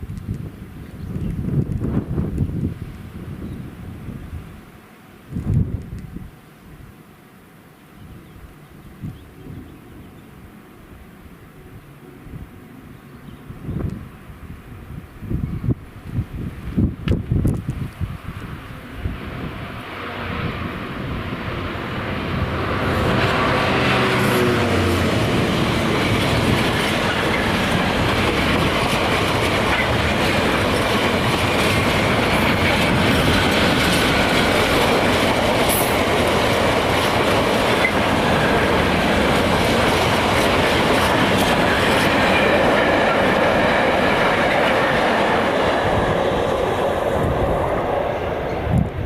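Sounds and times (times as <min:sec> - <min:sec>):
train wheels clattering over rail joints: 0:25.0 - 0:45.8.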